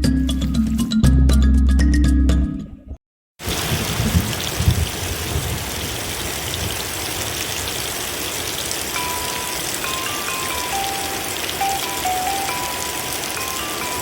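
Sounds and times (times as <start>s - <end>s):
steady rain: 3.4s - 14.0s
soft music notes: 9.0s - 14.0s.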